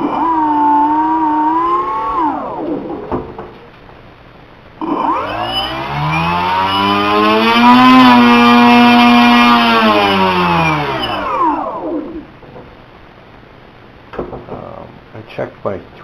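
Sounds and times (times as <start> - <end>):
electric motor propeller whine: 0.0 - 3.0, 4.8 - 12.3.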